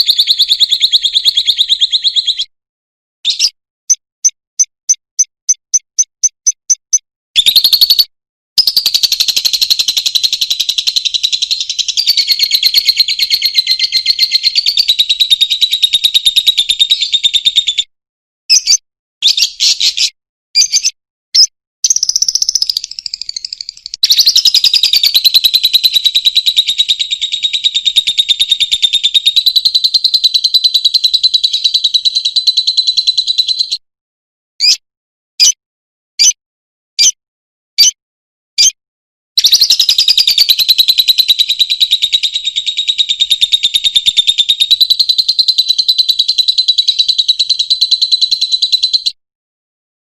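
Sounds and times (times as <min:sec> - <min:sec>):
bird chattering trill: 0:00.0 - 0:02.5, 0:03.3 - 0:17.8, 0:18.5 - 0:33.8, 0:34.6 - 0:34.8, 0:35.4 - 0:35.6, 0:39.4 - 0:49.2
short bird chirps: 0:03.2 - 0:17.8, 0:18.5 - 0:30.1, 0:35.4 - 0:35.6, 0:37.8 - 0:38.0.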